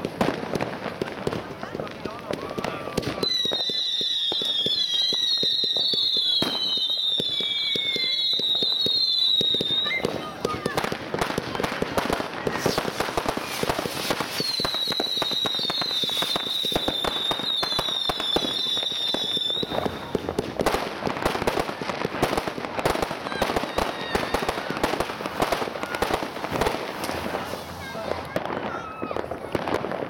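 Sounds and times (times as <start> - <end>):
fireworks bangs and crackling: 0.0 - 30.0
firework whistle: 2.6 - 10.8, 12.4 - 20.3, 23.1 - 24.8.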